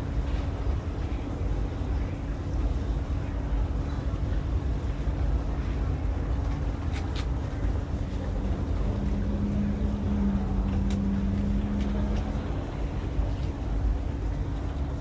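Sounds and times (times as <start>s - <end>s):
constant hum: 0.0s - 15.0s
train cabin rumble: 6.5s - 15.0s
low hum: 8.2s - 13.0s.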